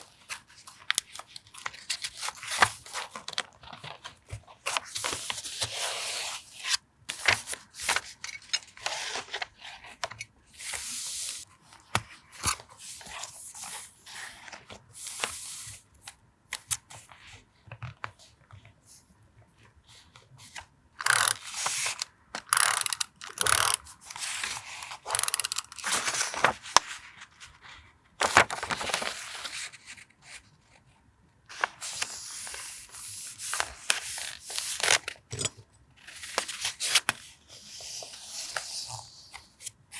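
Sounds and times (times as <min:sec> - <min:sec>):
paper rustling and tearing: 0:22.6 - 0:26.9.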